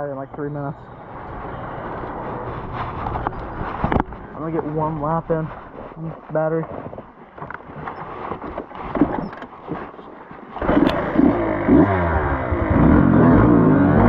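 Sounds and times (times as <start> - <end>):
light clattering and scraping: 1.2 - 11.0
dirt bike engine revving: 10.6 - 14.0.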